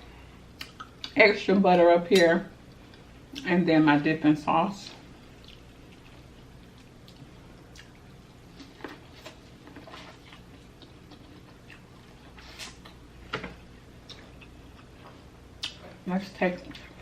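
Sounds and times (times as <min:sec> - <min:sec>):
faint low hum: 0:00.0 - 0:17.0
wet chewing smacks: 0:05.2 - 0:13.0.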